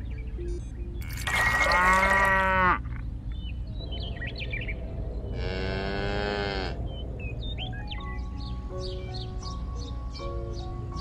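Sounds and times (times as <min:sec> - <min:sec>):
cow mooing: 0:01.0 - 0:02.8, 0:05.4 - 0:06.8.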